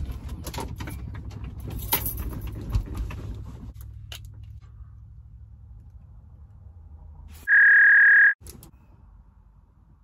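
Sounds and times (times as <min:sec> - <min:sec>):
censor bleep: 0:07.5 - 0:08.4.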